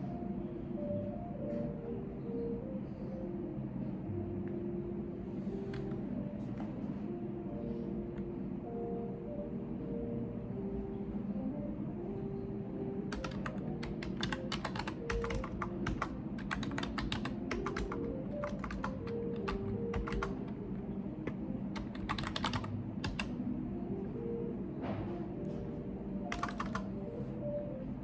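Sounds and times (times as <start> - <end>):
computer keyboard typing: 13.1 - 23.4, 26.2 - 27.0.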